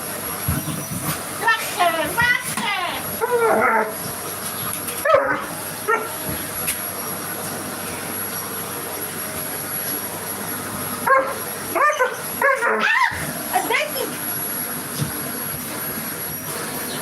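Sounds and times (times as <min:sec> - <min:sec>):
vacuum cleaner running: 0:00.0 - 0:17.0
dog barking: 0:05.0 - 0:06.1, 0:11.0 - 0:13.1.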